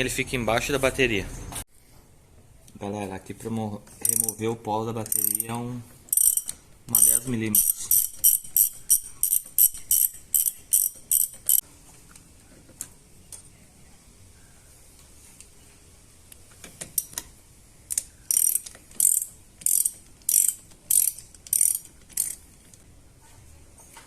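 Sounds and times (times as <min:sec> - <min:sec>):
ratchet wrench clicking: 0:04.0 - 0:04.4, 0:05.0 - 0:11.6, 0:17.9 - 0:22.5.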